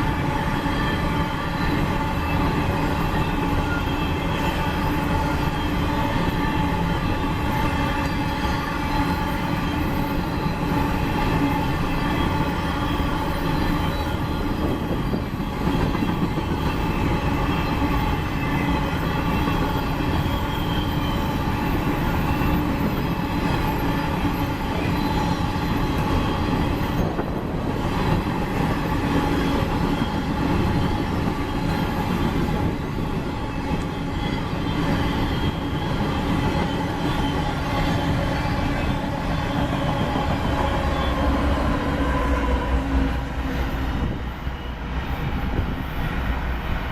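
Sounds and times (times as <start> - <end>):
train wheels rumbling on rail: 0.0 - 46.9.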